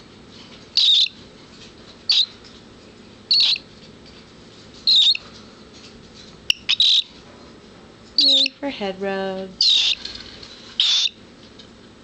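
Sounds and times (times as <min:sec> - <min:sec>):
cockatiel chirping calls: 0:00.8 - 0:01.2, 0:02.1 - 0:02.4, 0:03.3 - 0:03.6, 0:04.9 - 0:05.2, 0:06.5 - 0:07.1, 0:09.6 - 0:10.0, 0:10.8 - 0:11.2.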